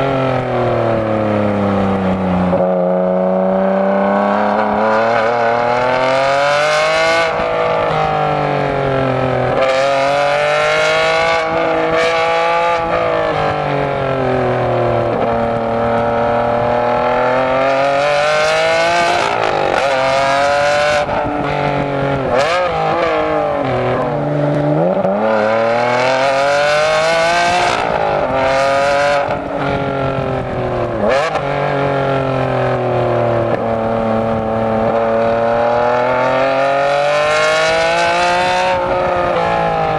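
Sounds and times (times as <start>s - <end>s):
sports car engine revving: 0.0s - 39.9s.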